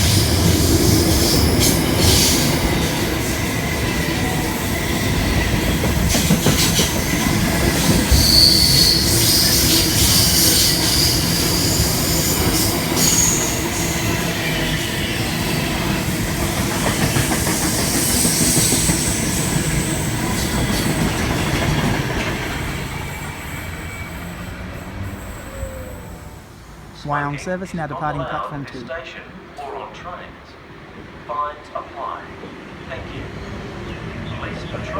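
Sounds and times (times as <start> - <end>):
train wheels rumbling on rails: 0.0 - 27.3
wheel and brake squeals: 6.1 - 15.7, 22.6 - 26.4.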